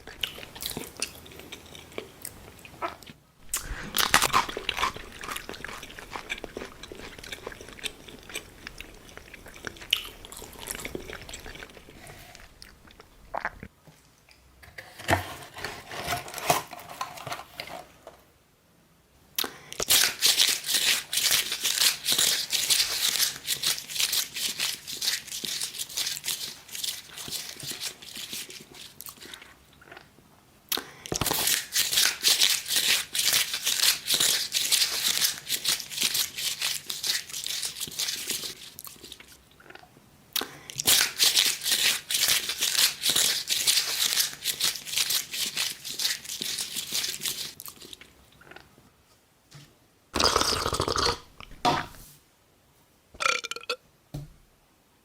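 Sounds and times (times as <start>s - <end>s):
crunchy chewing: 0.0s - 13.7s, 19.8s - 30.1s, 31.1s - 48.7s.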